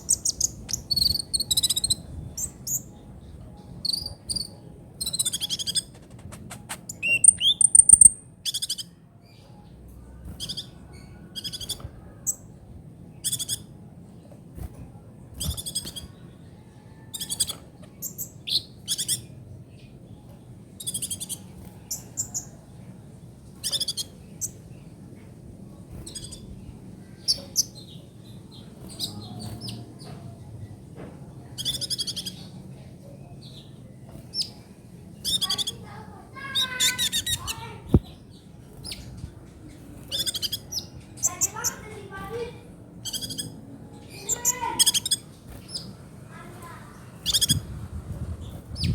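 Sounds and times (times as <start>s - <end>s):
sunbird trilling: 0.0s - 2.9s, 3.8s - 9.0s, 17.0s - 19.3s, 35.2s - 37.9s, 40.1s - 41.9s, 43.0s - 46.0s, 47.2s - 47.7s
faint low hum: 0.0s - 48.9s.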